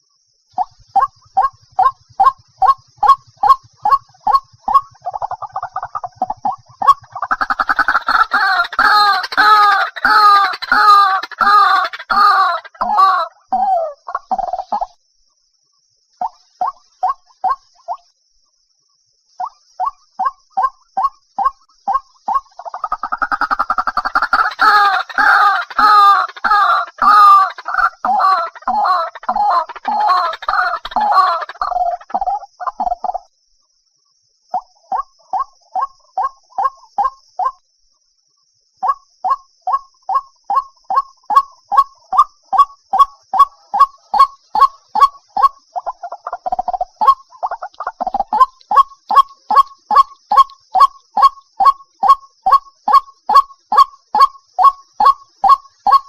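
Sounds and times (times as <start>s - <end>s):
waterhen croaking calls: 0.6s - 15.0s, 16.2s - 18.0s, 19.4s - 33.3s, 34.5s - 37.6s, 38.8s - 56.0s.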